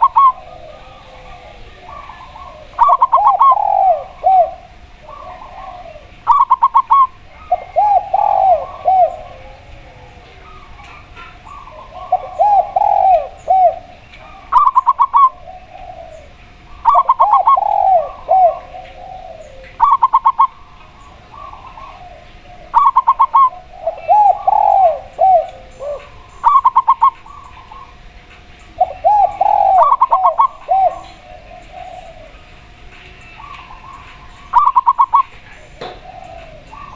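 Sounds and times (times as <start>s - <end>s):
low dove coos: 0.0s - 28.1s, 28.7s - 36.9s
rapid staccato dove calls: 2.2s - 9.4s, 33.3s - 36.9s.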